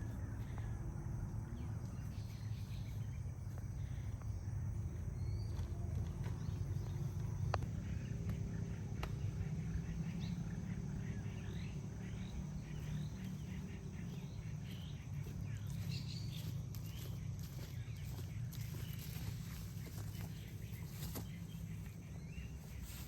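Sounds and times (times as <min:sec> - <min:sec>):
bird chirping: 0:00.0 - 0:23.0
high insect drone: 0:00.0 - 0:23.0.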